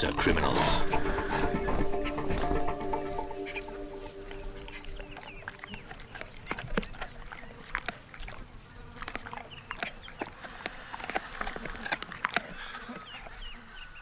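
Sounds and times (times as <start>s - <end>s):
background music: 0.0s - 6.2s.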